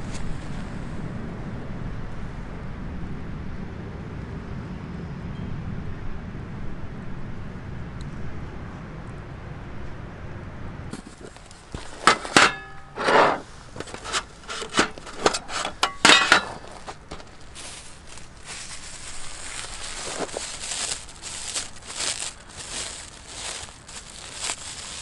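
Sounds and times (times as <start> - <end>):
soft steady crackling: 11.0 - 25.0
metal cookware clinking: 11.8 - 17.3.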